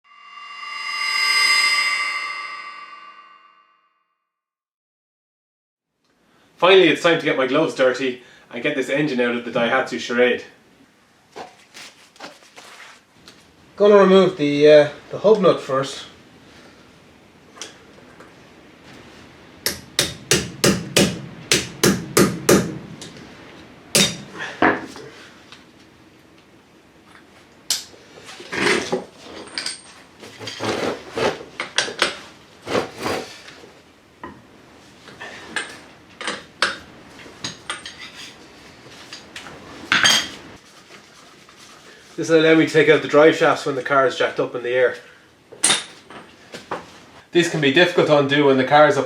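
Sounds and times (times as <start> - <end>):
hammer striking metal: 19.7 - 22.8, 24.0 - 24.3.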